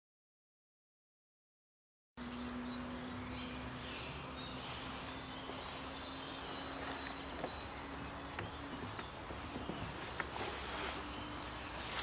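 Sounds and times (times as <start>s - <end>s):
songbirds singing: 2.2s - 12.0s.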